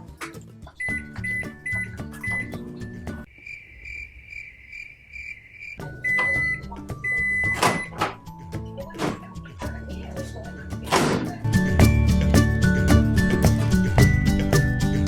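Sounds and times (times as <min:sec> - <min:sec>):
background music: 0:05.8 - 0:15.0.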